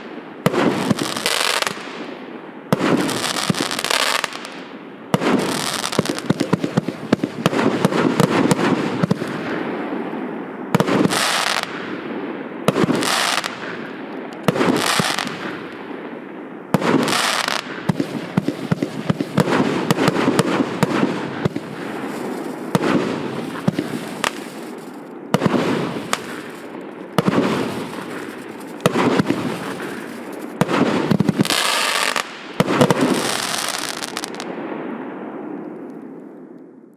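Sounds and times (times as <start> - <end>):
firework crackling: 0.0 - 2.0, 2.8 - 4.6, 5.2 - 9.6, 10.8 - 11.9, 12.7 - 15.6, 16.8 - 34.5
fireworks launch reports: 16.8 - 34.5.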